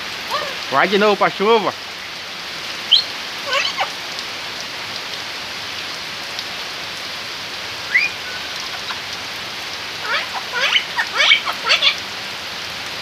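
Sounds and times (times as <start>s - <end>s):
heavy rain on wooden planks: 0.0s - 13.0s
parrot squawk: 2.9s - 4.0s, 7.9s - 9.1s, 10.0s - 12.0s.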